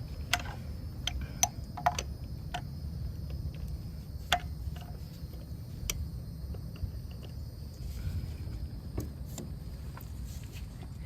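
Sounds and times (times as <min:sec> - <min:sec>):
low steady hum: 0:00.0 - 0:11.0
metallic clicks of engine turned by hand: 0:00.2 - 0:02.7.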